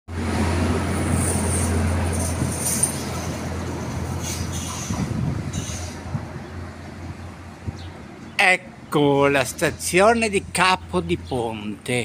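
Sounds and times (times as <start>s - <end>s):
railcar engine hum: 0.1s - 12.0s
hissing wheel and rail noise: 0.2s - 6.4s.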